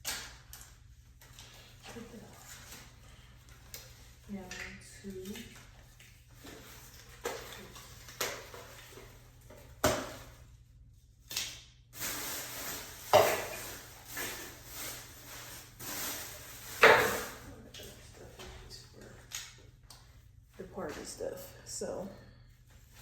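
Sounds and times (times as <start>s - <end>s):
objects knocking and clattering: 13.1s - 14.5s, 16.7s - 17.5s.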